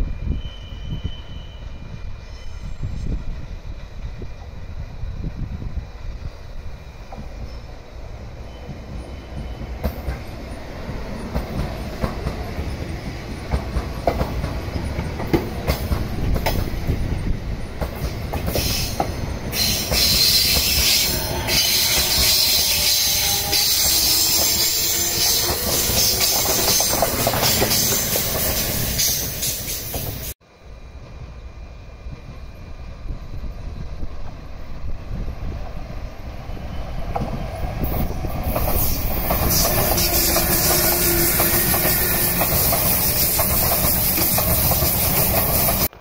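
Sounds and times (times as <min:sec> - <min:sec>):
train passing with whine: 0:00.0 - 0:46.0
wheels clicking over rail joints: 0:37.1 - 0:46.0.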